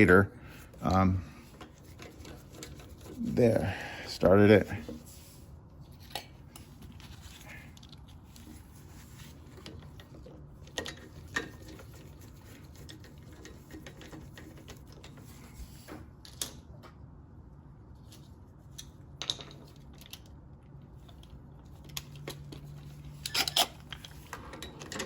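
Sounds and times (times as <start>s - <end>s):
low steady hum: 0.0s - 25.0s
small parts clicking and tapping: 18.7s - 20.4s.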